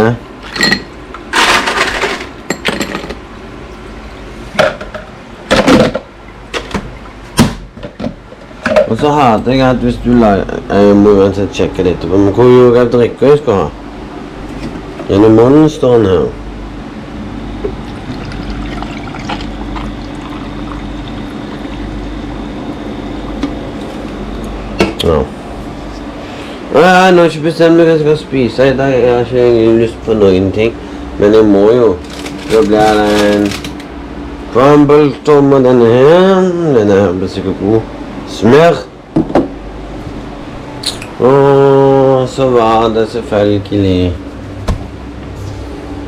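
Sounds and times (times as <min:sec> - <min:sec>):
dishes clattering: 0:00.4 - 0:03.2
glassware and dishes clinking: 0:00.4 - 0:03.2
drink pouring and fizzing: 0:17.8 - 0:22.0.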